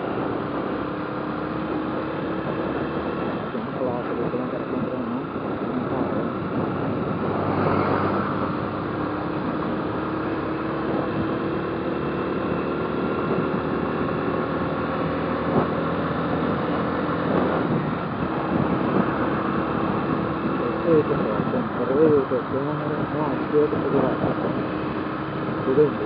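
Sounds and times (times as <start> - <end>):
motorcycle engine running: 0.0 - 26.0
wind and road noise: 0.0 - 26.0.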